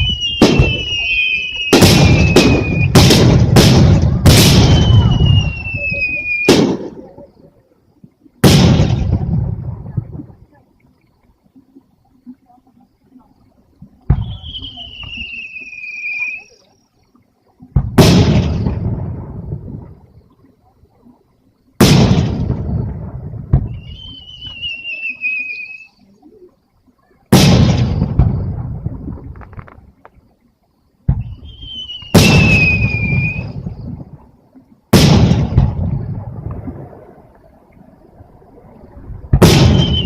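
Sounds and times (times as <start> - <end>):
whistle of climbing shell: 0.0 - 3.0, 4.5 - 6.6, 14.2 - 16.8, 23.7 - 26.1, 31.2 - 33.8, 39.6 - 40.0
firework shells bursting: 0.0 - 7.1, 31.1 - 33.7, 39.3 - 40.0.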